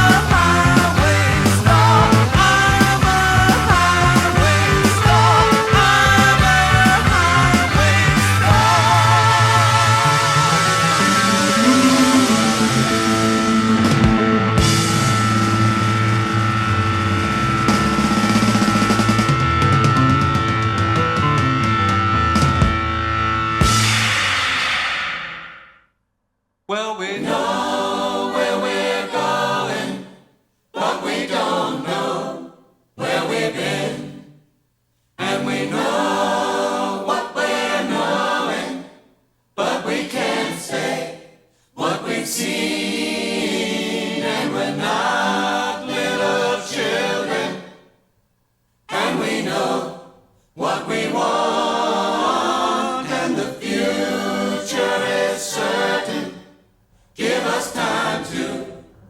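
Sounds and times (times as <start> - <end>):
choir singing unaccompanied: 0.0 - 15.1, 26.9 - 34.4, 35.2 - 47.9, 48.9 - 59.0.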